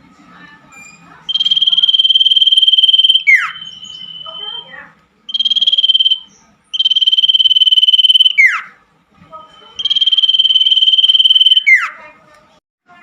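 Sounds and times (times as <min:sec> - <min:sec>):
high pulsed trills: 0:01.3 - 0:04.7, 0:05.3 - 0:08.5, 0:09.8 - 0:11.8
quick falling whistle: 0:09.8 - 0:11.8.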